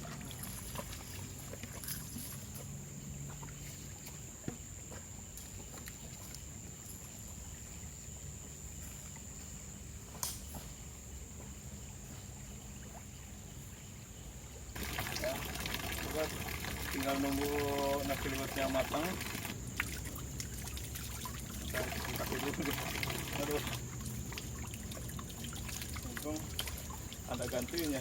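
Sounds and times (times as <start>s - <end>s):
river water flowing: 14.7s - 28.0s.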